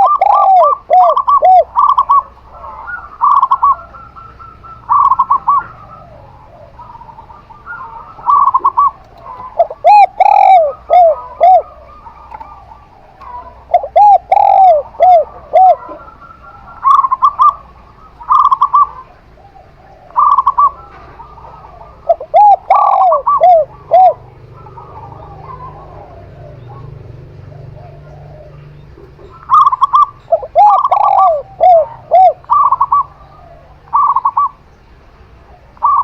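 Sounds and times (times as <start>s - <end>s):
quick high dove coos: 0.0s - 17.6s
low rounded dove coos: 0.0s - 34.7s, 35.3s - 36.0s.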